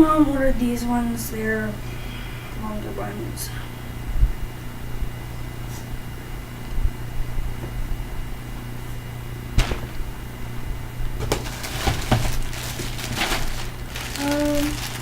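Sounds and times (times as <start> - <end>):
steady low hum: 0.0 - 15.0
plastic wrapping crinkling: 11.2 - 15.0.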